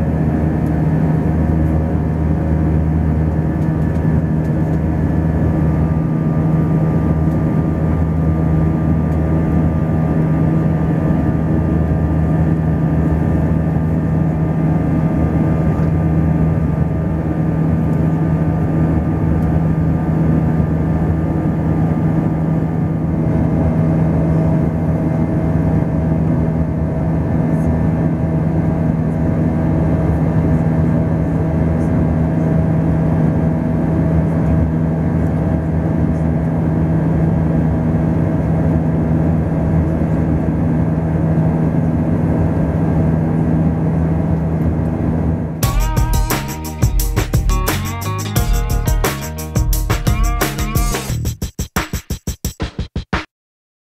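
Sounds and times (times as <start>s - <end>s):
jet engines droning: 0.0s - 48.4s
low hum: 0.0s - 51.2s
steady high tones: 45.6s - 51.3s.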